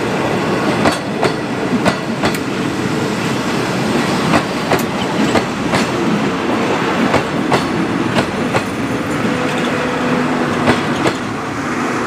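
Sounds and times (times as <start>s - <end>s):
train wheels clacking over rail joints: 0.7s - 2.5s, 4.0s - 9.8s, 10.5s - 11.5s.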